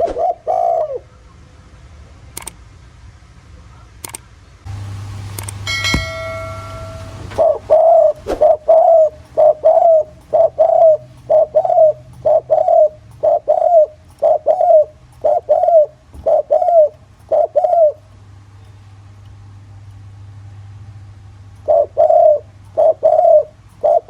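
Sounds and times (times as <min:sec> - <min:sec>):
dove cooing: 0:00.0 - 0:01.2, 0:06.3 - 0:18.1, 0:21.6 - 0:24.0.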